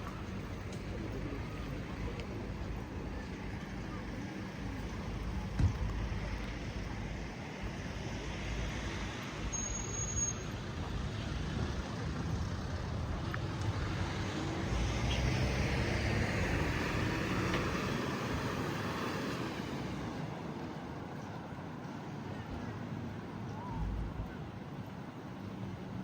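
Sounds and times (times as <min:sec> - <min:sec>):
road traffic: 0:00.0 - 0:26.0
vehicle passing: 0:11.0 - 0:20.2.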